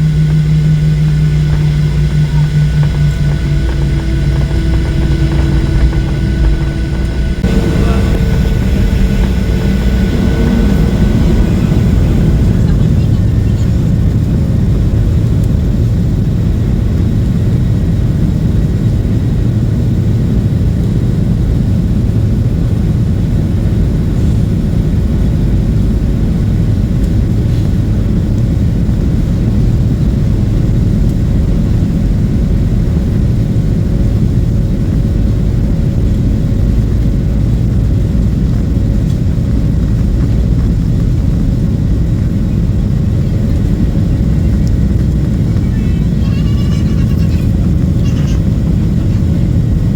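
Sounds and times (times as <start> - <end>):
faint high whine: 0.0 - 13.7
jet engine cabin rumble: 0.0 - 49.9.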